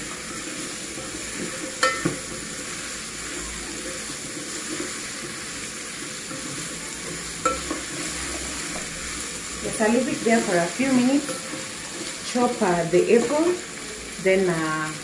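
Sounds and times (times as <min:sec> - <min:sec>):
squash sizzling in a pot: 0:00.0 - 0:15.0
wooden spoon knocking metal pot: 0:01.8 - 0:02.3, 0:07.4 - 0:07.9.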